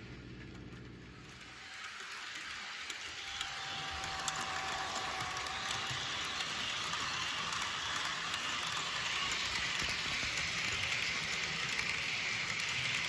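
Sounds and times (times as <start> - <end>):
model train rattling on track: 1.2 - 13.0.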